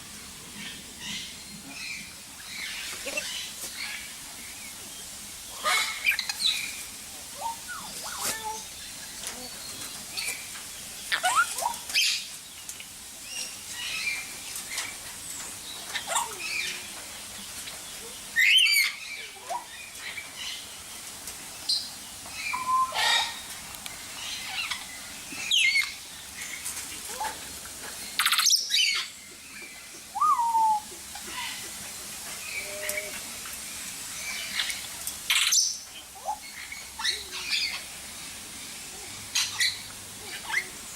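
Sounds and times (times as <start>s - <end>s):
birds chirping: 0.5s - 40.9s
loud bird calls: 5.5s - 12.4s, 21.7s - 27.4s, 28.0s - 31.8s.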